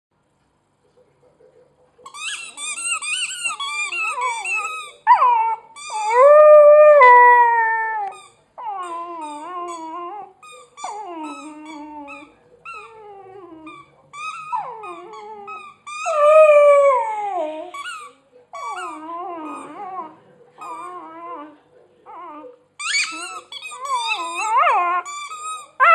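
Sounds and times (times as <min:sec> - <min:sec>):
puppy howling and whining: 0:03.5 - 0:17.9, 0:18.6 - 0:25.9.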